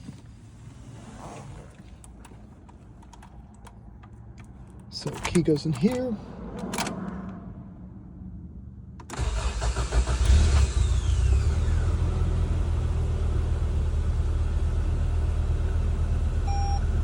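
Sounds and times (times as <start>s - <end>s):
engine cranking and starting: 9.0s - 12.1s
engine idling with whine: 9.2s - 17.0s.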